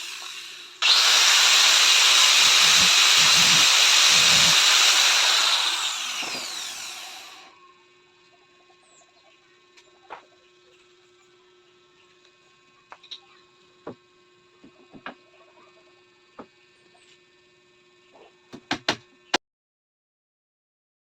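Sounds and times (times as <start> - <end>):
light knocks and taps: 14.6 - 15.2.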